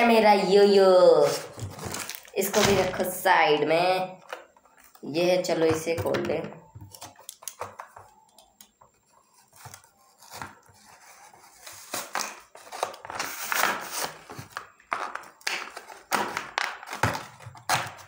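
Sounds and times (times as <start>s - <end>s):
packaging crinkling and tearing: 1.3s - 2.6s, 9.3s - 18.0s.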